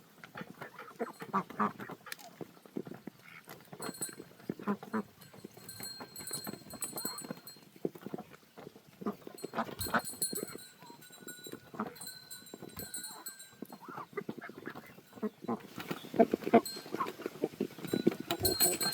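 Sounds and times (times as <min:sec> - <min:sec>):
animal calls: 0:09.1 - 0:18.9.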